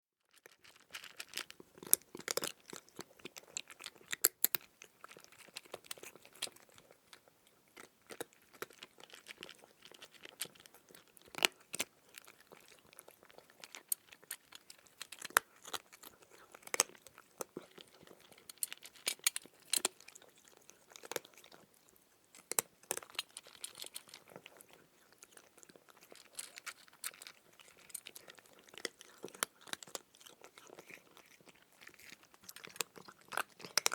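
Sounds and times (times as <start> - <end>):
cat chewing dry kibble: 0.3 - 33.9.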